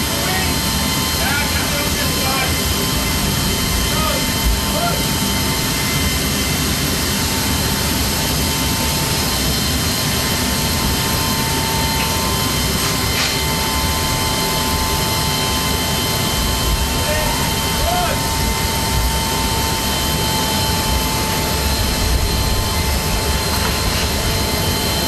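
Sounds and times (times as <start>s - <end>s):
jet turbine running: 0.0s - 25.0s.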